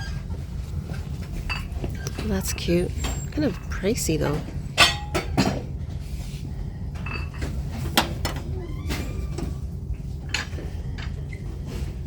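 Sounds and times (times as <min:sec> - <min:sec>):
low background hum: 0:00.0 - 0:12.0
ceramic items clinking: 0:01.4 - 0:05.6, 0:07.0 - 0:07.6.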